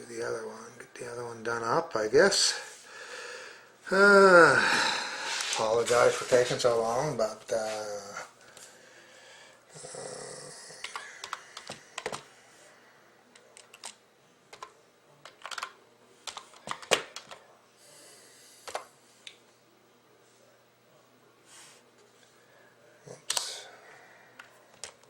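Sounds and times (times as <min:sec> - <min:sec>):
soft hissing noises: 0:17.8 - 0:19.3, 0:21.4 - 0:22.4.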